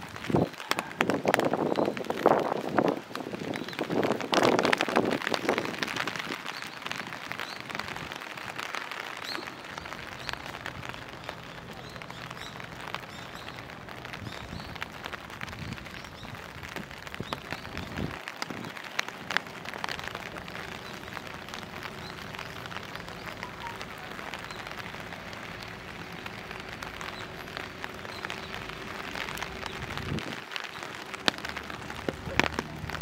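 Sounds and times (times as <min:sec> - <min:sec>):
rain drops ticking: 0:00.0 - 0:33.0
steady hiss of rainfall: 0:00.0 - 0:33.0.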